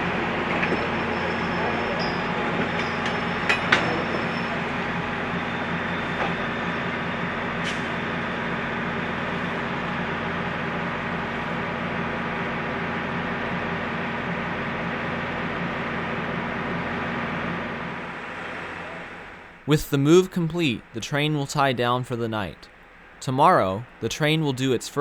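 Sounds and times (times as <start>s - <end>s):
train rolling: 0.0s - 11.2s.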